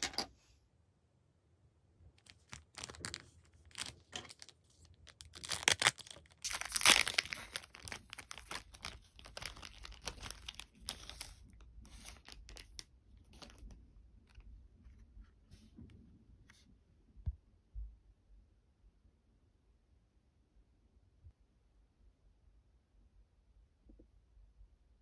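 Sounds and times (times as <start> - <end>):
packaging being torn and crinkled: 2.2 - 13.8.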